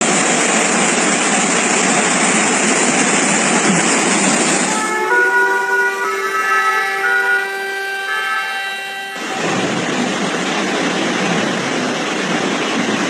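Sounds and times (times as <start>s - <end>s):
loud rushing noise: 0.2s - 13.0s
emergency vehicle siren: 4.4s - 9.9s.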